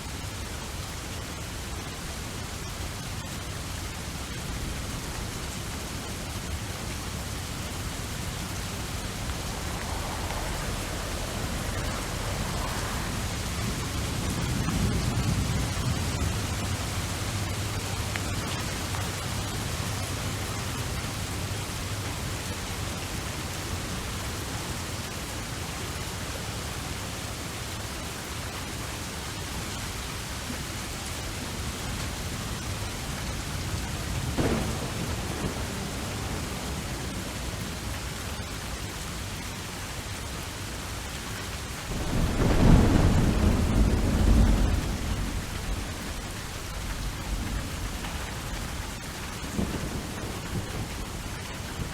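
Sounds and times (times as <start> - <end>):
steady rain: 0.0 - 51.9
low rumble of thunder: 0.1 - 25.2, 29.9 - 51.9
thunder crack: 6.4 - 18.1, 34.1 - 38.4, 41.9 - 51.9.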